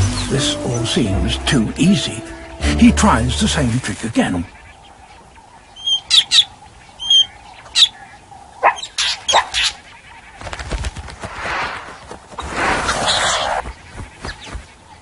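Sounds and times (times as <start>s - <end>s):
drongo alarm calls: 4.2s - 10.7s, 11.9s - 15.0s
rushing rustling noise: 10.4s - 15.0s.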